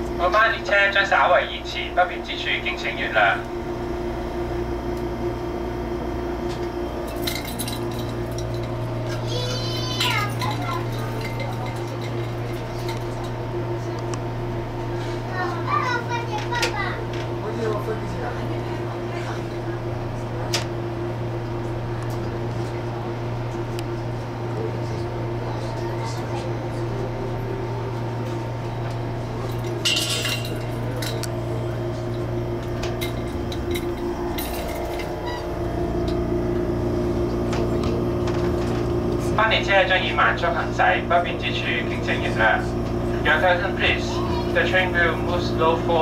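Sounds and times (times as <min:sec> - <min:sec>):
train humming: 0:00.0 - 0:46.0
light clinks: 0:10.0 - 0:13.2.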